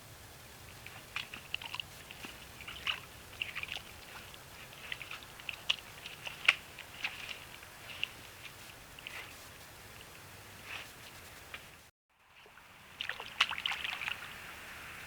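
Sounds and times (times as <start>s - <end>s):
beaver gnawing on wood: 0.6s - 10.2s.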